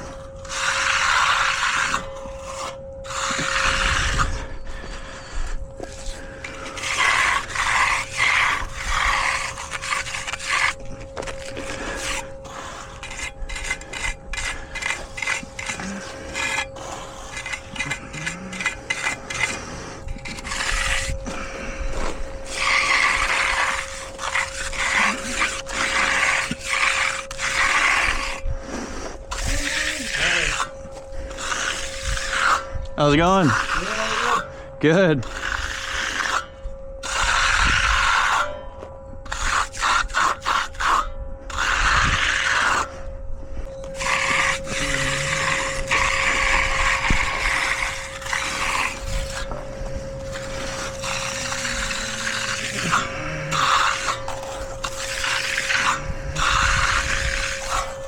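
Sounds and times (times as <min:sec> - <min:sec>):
trowel scraping over concrete: 0:00.0 - 0:58.0.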